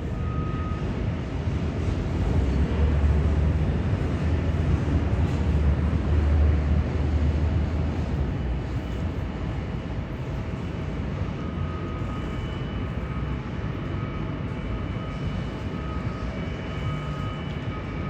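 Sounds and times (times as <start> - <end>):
jet engines rumbling: 0.0 - 18.0
faint thin whine: 10.2 - 18.0.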